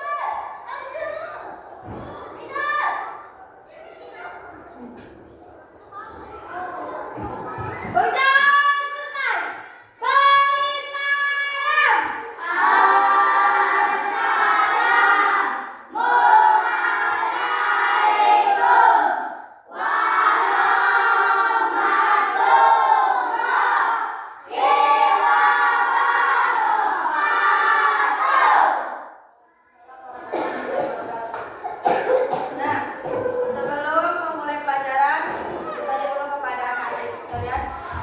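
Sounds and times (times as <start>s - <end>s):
children singing in unison: 12.4s - 28.8s.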